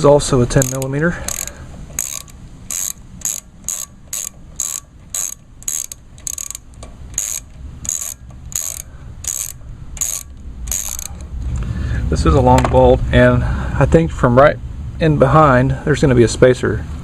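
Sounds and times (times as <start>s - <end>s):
ratchet wrench clicking: 0.0s - 11.3s.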